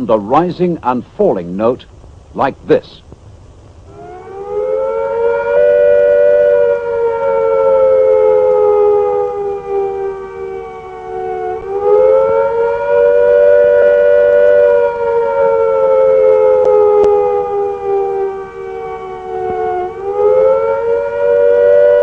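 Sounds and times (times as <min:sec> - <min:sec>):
air-raid siren rising and falling: 0:03.9 - 0:22.0.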